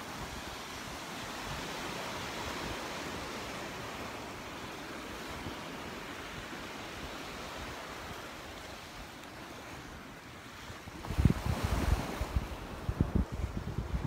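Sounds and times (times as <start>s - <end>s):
surf washing onto beach: 0.0s - 14.0s
wind buffeting microphone: 10.6s - 14.0s.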